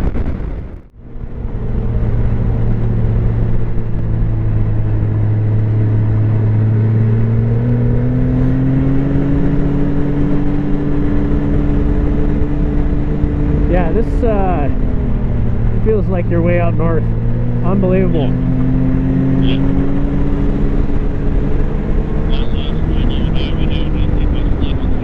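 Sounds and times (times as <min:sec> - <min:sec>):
snowmobile engine running: 0:00.0 - 0:25.0.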